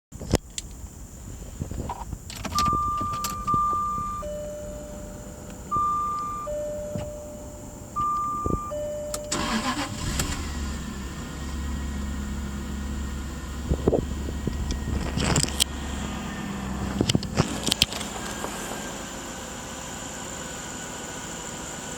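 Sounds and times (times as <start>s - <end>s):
car engine idling: 0.5s - 21.9s
car starter cranking: 1.9s - 12.2s
two-tone warning chime: 2.6s - 9.9s.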